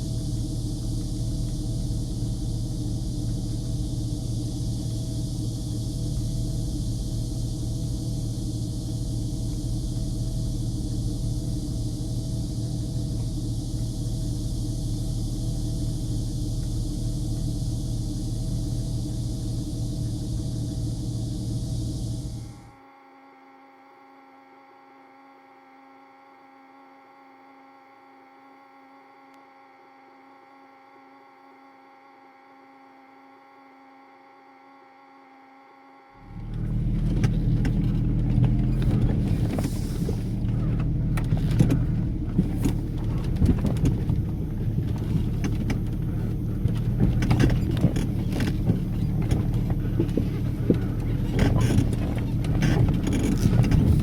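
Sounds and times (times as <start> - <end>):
off-road vehicle engine rumbling: 0.0 - 22.7, 36.2 - 54.0
faint hum of held tones: 0.0 - 54.0.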